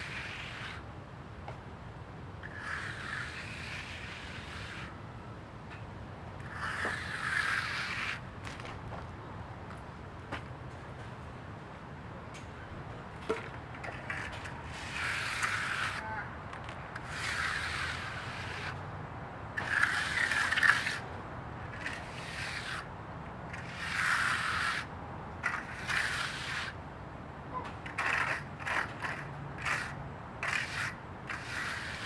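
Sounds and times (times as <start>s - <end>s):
scraping strokes: 0.0s - 0.8s, 2.4s - 5.0s, 6.4s - 8.7s, 13.2s - 18.8s, 19.5s - 22.9s, 23.5s - 26.8s, 27.7s - 32.0s.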